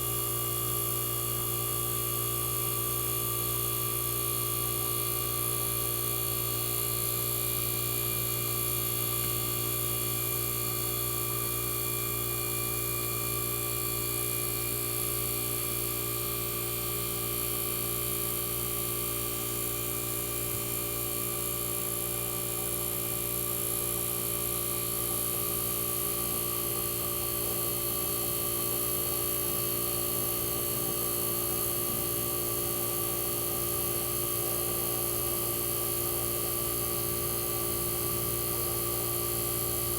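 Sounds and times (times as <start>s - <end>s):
air conditioner compressor hum: 0.0s - 39.9s.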